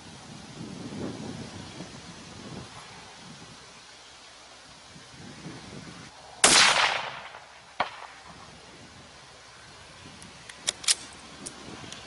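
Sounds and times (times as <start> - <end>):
rifle shot: 6.4 - 8.2.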